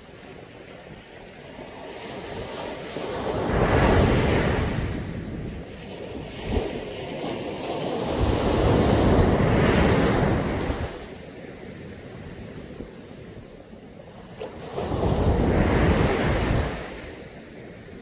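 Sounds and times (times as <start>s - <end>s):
sea waves breaking on beach: 0.0s - 18.0s
wind on microphone: 0.0s - 18.0s.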